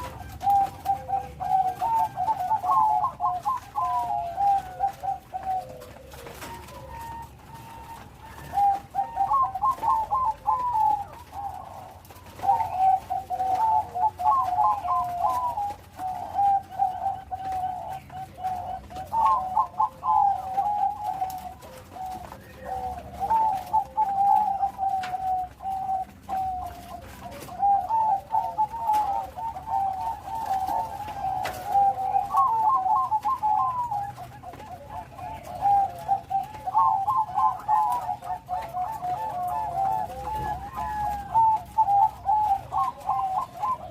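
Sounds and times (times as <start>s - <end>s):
dove cooing song: 0.0s - 43.9s.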